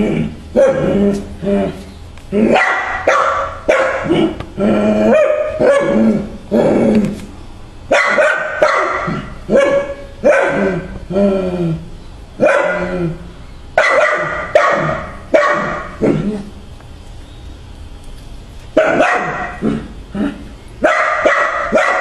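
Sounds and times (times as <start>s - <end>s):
dog barking: 0.6s - 0.9s, 2.5s - 4.4s, 5.1s - 6.0s, 7.9s - 10.8s, 12.4s - 12.9s, 13.8s - 16.0s, 18.8s - 19.7s, 20.8s - 22.0s.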